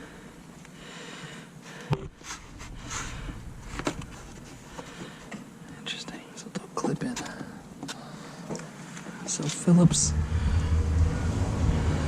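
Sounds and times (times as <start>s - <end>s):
handling noise: 2.0s - 5.5s.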